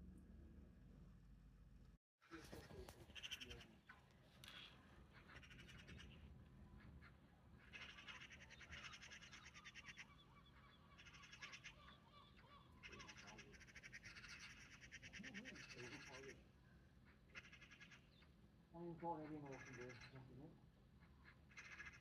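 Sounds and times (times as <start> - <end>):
low steady hum: 0.0 - 2.0
magpie chattering: 2.5 - 3.8, 4.4 - 6.2, 7.6 - 16.4, 17.3 - 18.3, 19.2 - 20.4, 21.2 - 22.0.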